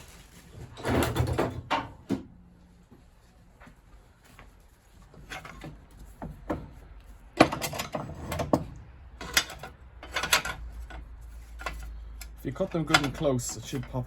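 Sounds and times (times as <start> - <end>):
hand tools clanking on metal: 9.2 - 14.0.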